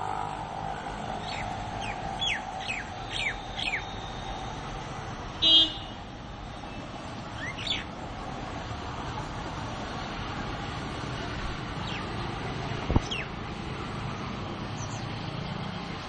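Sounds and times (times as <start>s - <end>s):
birds chirping: 1.1s - 4.5s, 6.6s - 7.9s, 11.8s - 13.4s, 14.1s - 15.2s
loud toot: 5.4s - 6.0s.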